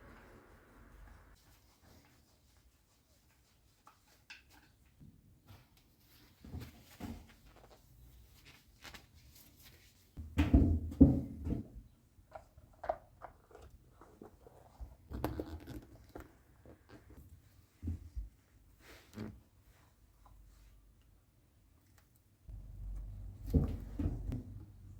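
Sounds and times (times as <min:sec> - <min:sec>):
objects knocking and clattering: 0:22.6 - 0:24.9.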